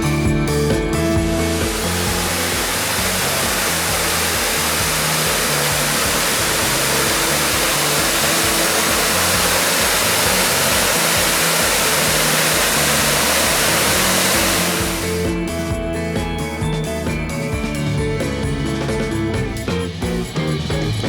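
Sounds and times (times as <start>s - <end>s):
background music: 0.0s - 21.0s
waterfall rushing: 1.4s - 15.4s.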